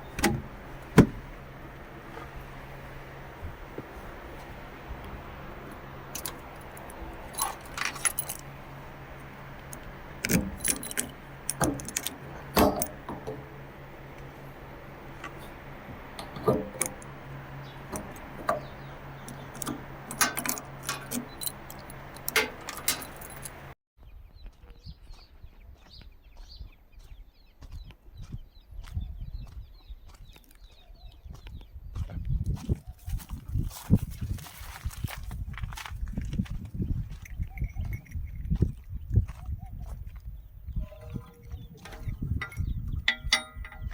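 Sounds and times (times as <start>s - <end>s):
tractor engine humming: 0.0s - 23.8s, 32.9s - 43.9s
metallic clinks and rattles: 5.6s - 23.7s, 37.0s - 38.9s, 40.8s - 43.9s.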